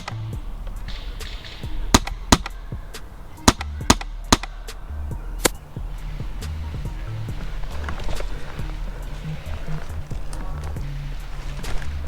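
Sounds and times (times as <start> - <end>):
airsoft gun shots: 0.0 - 6.6
low rumbling background: 0.0 - 12.0.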